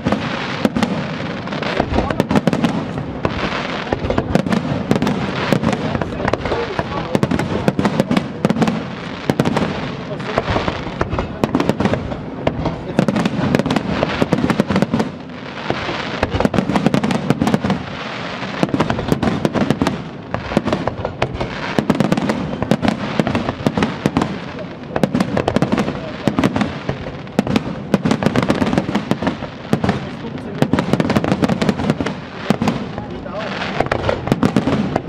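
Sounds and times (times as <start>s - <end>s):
firework bangs and crackles: 0.0s - 35.0s
fireworks hiss and rumble: 0.0s - 35.0s.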